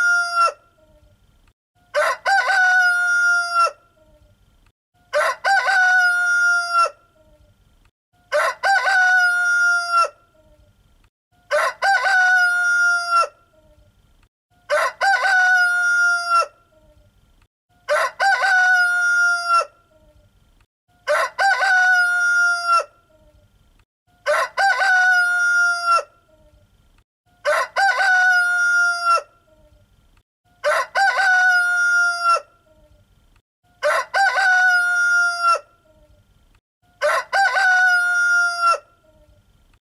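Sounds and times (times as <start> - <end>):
rooster crowing: 1.9 - 3.8, 5.1 - 7.0, 8.2 - 10.2, 11.5 - 13.4, 14.7 - 16.6, 17.8 - 19.8, 21.0 - 22.9, 24.2 - 26.1, 27.4 - 29.3, 30.6 - 32.5, 33.8 - 35.7, 37.0 - 39.0.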